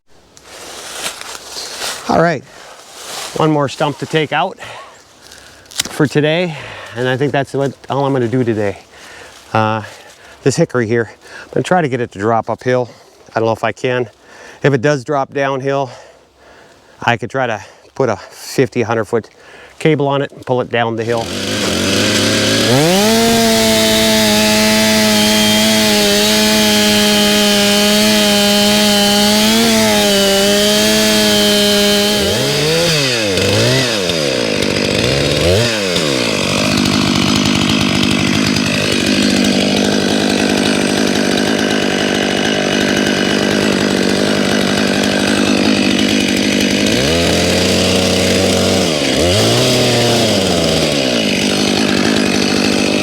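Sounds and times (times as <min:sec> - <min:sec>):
chainsaw revving: 0:21.0 - 0:53.0.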